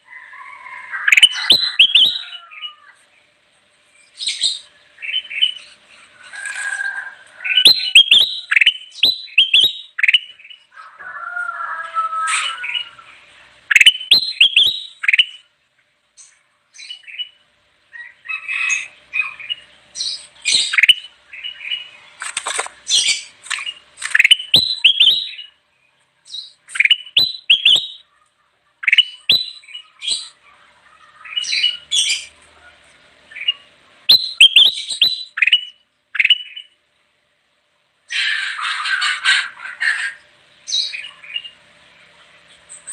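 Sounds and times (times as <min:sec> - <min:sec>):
bulbul chirping and whistling: 0:01.0 - 0:02.4, 0:07.5 - 0:10.6, 0:13.7 - 0:15.5, 0:18.6 - 0:21.9, 0:22.9 - 0:25.6, 0:26.3 - 0:28.1, 0:28.8 - 0:30.4, 0:33.4 - 0:36.8.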